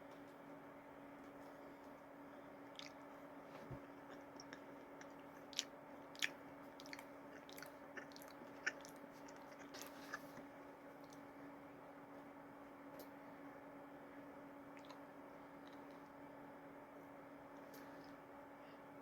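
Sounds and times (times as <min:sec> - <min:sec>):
faint steady hum: 0:00.0 - 0:19.0
chewing cookie: 0:02.6 - 0:11.3, 0:14.7 - 0:16.1.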